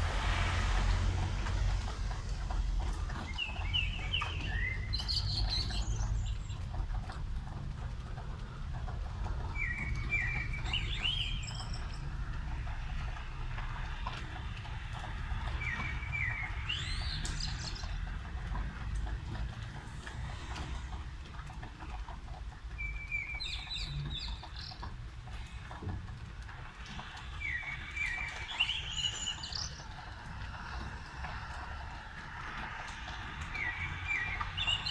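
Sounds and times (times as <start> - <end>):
low rumble: 0.0 - 5.1, 24.3 - 34.9
rain hiss: 0.0 - 34.9
bird calling rising glide: 26.5 - 34.9.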